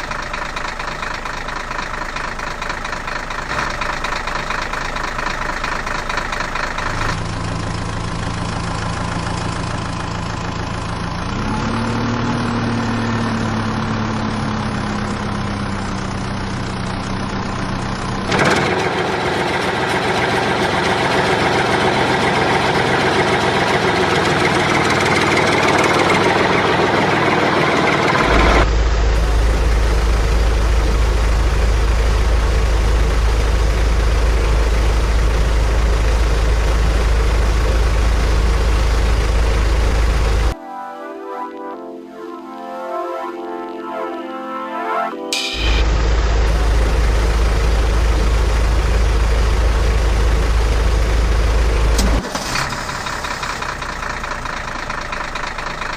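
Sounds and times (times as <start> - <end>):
heavy machinery engine: 0.0 - 40.6, 45.3 - 55.9
heavy low rumble: 26.5 - 40.6, 45.5 - 52.2.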